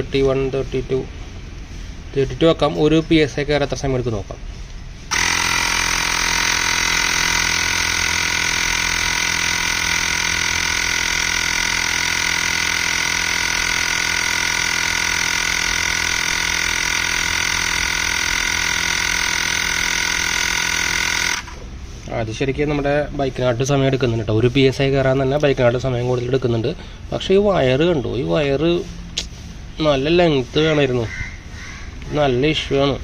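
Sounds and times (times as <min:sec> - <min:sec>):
electric air compressor running: 0:05.1 - 0:22.1.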